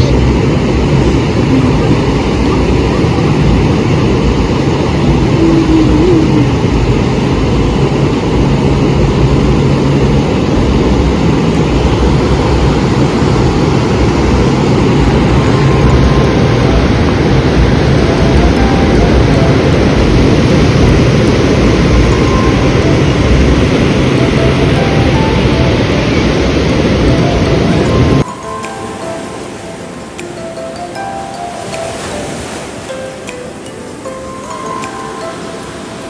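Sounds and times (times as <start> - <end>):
wind buffeting microphone: 0.0 - 28.3
sea wash: 0.0 - 36.0.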